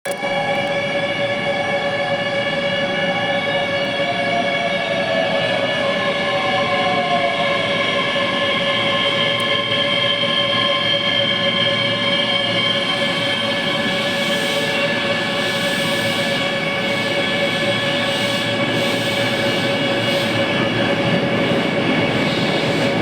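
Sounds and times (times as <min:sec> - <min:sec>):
electric train whine: 0:00.1 - 0:23.0.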